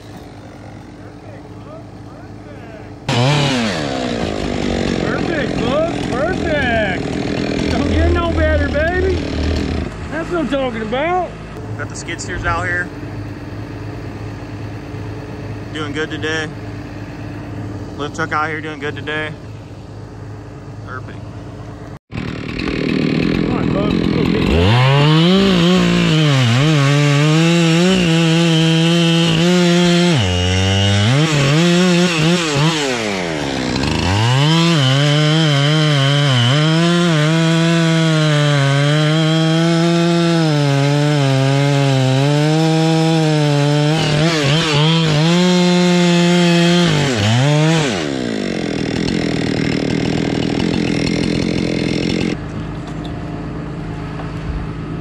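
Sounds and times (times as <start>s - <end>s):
chainsaw cutting wood: 0.0s - 1.2s, 3.0s - 20.4s, 21.7s - 52.7s.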